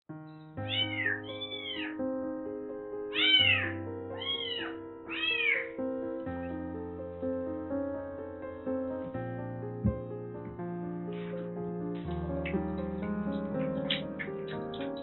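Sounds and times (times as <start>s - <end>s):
soft piano music: 0.1s - 15.0s
cat meowing: 0.7s - 2.0s, 3.1s - 5.8s.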